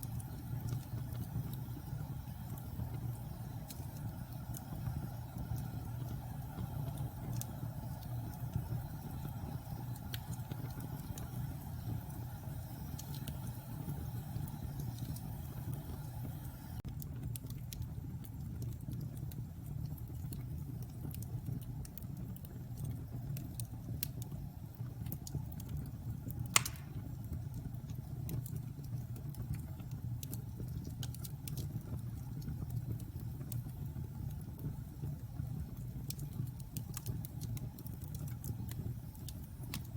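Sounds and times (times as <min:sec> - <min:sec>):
wood fire crackling: 0:00.0 - 0:39.9
loud pop from fire: 0:26.5 - 0:27.1.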